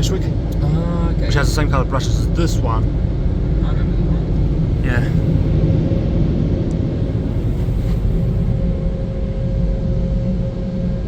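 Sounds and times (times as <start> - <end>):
blower dryers rushing air: 4.2 - 11.0.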